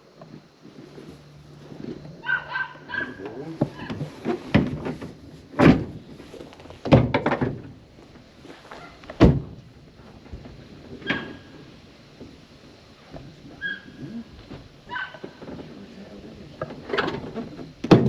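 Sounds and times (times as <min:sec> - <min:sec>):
hard knocks and thumps: 0:03.2 - 0:06.1, 0:06.8 - 0:07.8, 0:09.1 - 0:11.2, 0:16.6 - 0:18.0.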